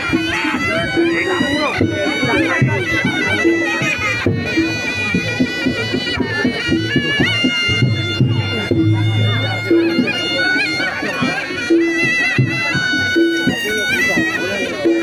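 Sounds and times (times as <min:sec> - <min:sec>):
drums: 0:00.0 - 0:15.0
shrill shawm melody: 0:00.0 - 0:15.0
gong-chime notes: 0:07.7 - 0:10.9
low gong tone: 0:08.3 - 0:10.2.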